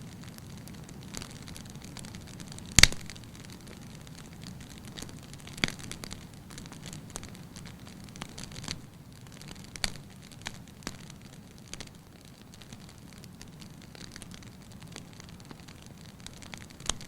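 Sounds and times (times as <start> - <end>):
wood fire crackling: 0.0 - 17.0
sharp loud pop of fire: 2.8 - 3.1.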